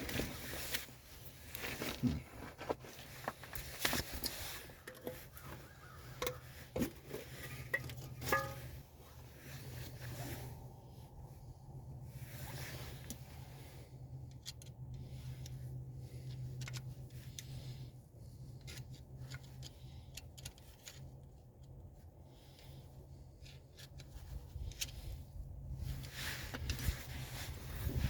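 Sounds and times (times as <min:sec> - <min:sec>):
steady low hum: 0:00.0 - 0:28.0
metallic clicks and rubbing: 0:12.4 - 0:28.0.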